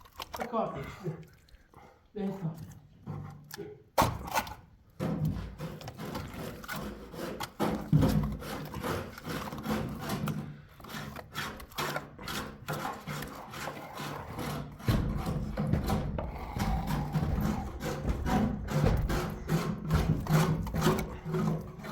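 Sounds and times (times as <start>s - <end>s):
rubbing and scraping by hand: 4.9s - 21.9s.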